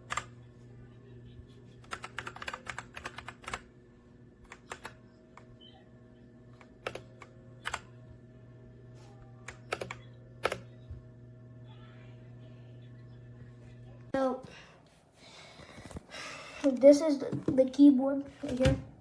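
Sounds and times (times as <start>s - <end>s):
steady low hum: 0.0s - 16.7s
mechanical keyboard clicking: 1.8s - 3.7s, 4.4s - 5.5s, 6.6s - 7.9s, 9.5s - 10.6s.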